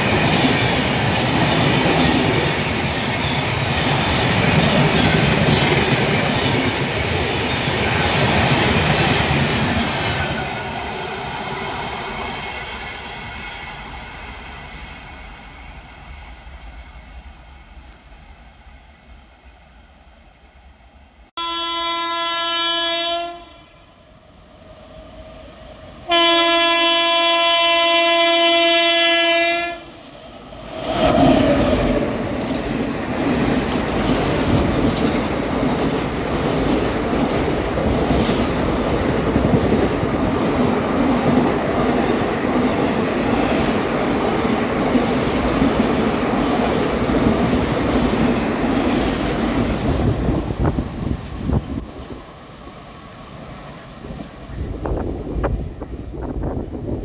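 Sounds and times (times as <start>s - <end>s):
train rushing past: 0.0s - 57.0s
train horn blasts: 21.4s - 23.9s, 26.1s - 29.9s.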